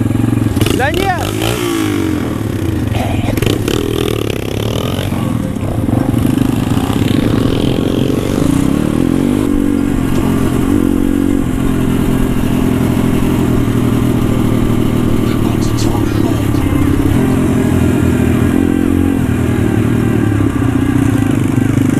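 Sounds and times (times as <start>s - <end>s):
pit bike engine running: 0.0s - 21.9s.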